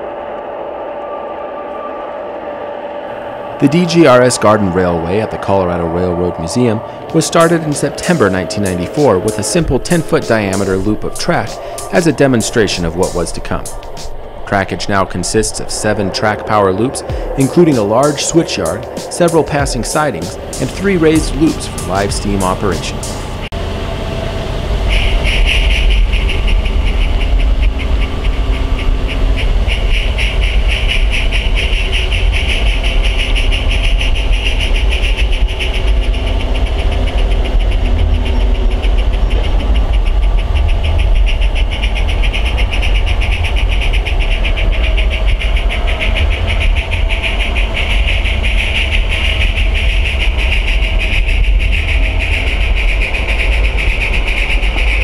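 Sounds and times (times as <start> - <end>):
model train rattling hum: 3.1 - 55.0.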